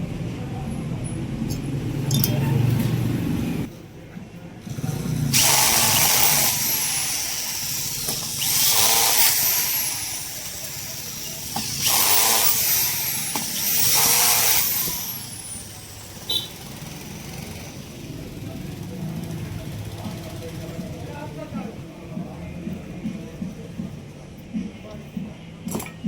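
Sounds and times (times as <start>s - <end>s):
small power tool whirring: 4.7s - 18.1s.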